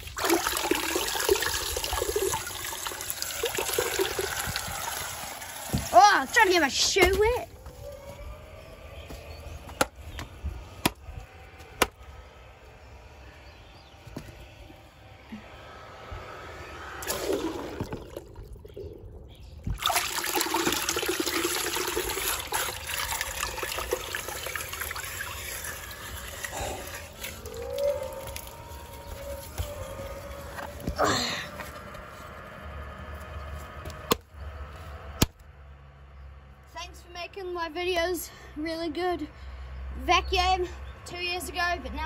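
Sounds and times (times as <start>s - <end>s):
running water splashing: 0.0s - 7.0s, 19.7s - 28.5s.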